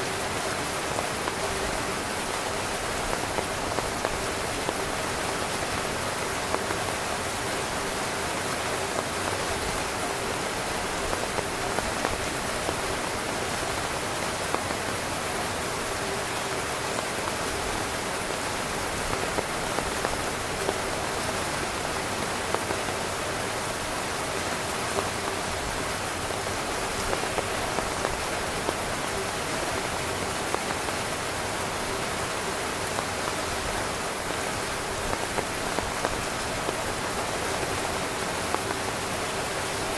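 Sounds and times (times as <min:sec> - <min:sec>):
heavy rain on a tent: 0:00.0 - 0:39.9
drops hitting fabric: 0:32.9 - 0:39.9.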